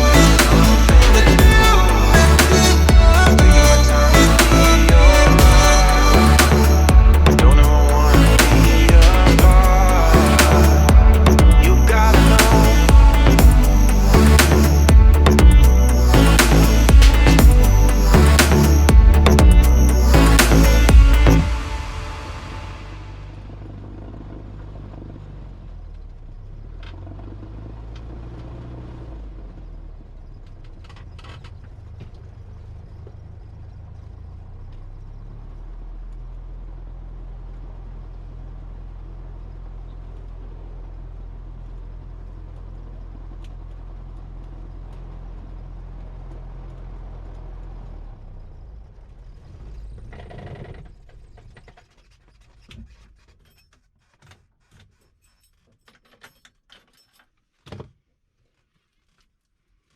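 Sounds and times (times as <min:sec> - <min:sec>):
piston aircraft engine running: 0:00.0 - 0:25.2.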